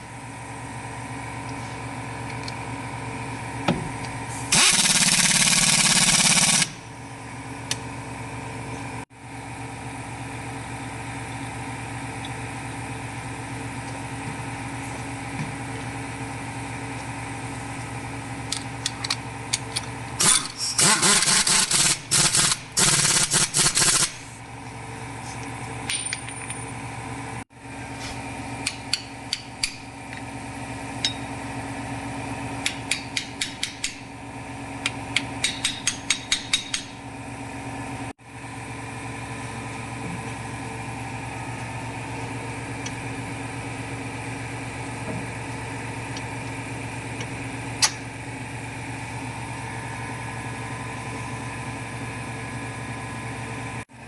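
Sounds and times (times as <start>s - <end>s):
steady machine hum: 0.0s - 54.0s
loud tool rattling: 4.5s - 6.8s, 20.2s - 24.2s.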